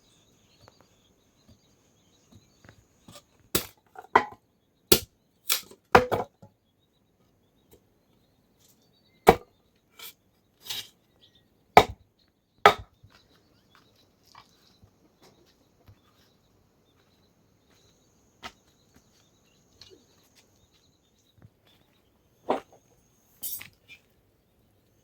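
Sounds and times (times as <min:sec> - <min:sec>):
sharp chopping strikes: 0:03.6 - 0:03.8, 0:04.9 - 0:06.2, 0:11.8 - 0:12.0, 0:12.7 - 0:12.9.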